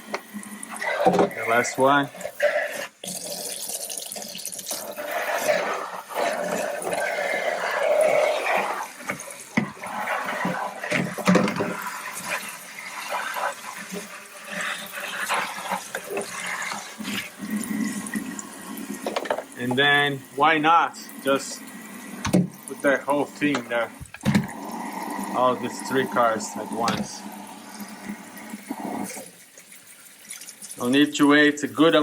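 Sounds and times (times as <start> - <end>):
tap water splashing on plastic: 0.1 - 0.4, 19.0 - 20.0, 22.2 - 22.7.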